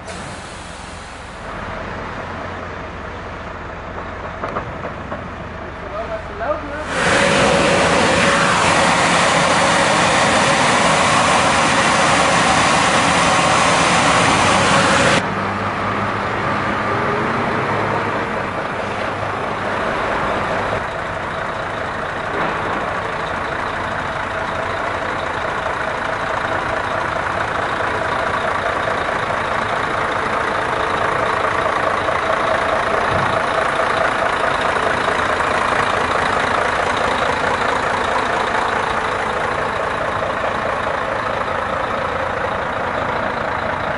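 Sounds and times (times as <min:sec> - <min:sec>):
truck engine running: 0:00.0 - 0:43.9
loud even rushing noise: 0:06.8 - 0:15.3.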